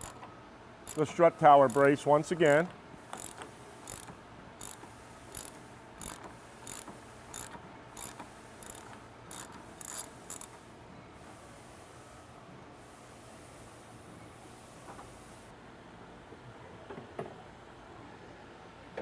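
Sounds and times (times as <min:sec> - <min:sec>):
ratchet wrench clicking: 0:00.0 - 0:00.2, 0:00.9 - 0:10.6.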